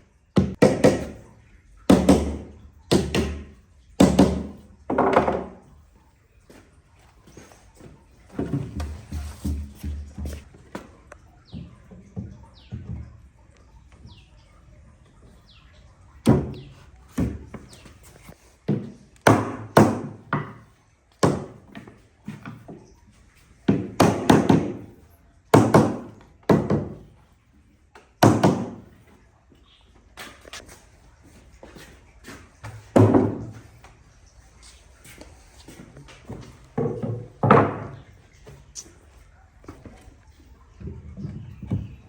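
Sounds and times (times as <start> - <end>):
wooden thunks and knocks: 0.4 - 1.3, 1.9 - 5.7, 7.3 - 13.4, 16.2 - 22.9, 23.7 - 27.2, 28.2 - 29.1, 32.3 - 33.9, 36.1 - 38.6, 40.8 - 42.0.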